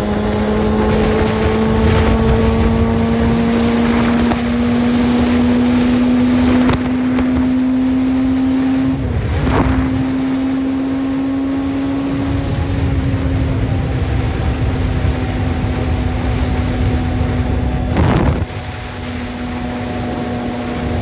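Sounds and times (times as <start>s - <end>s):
motorcycle engine running: 0.0s - 21.0s
wind rumbling on microphone: 0.0s - 21.0s.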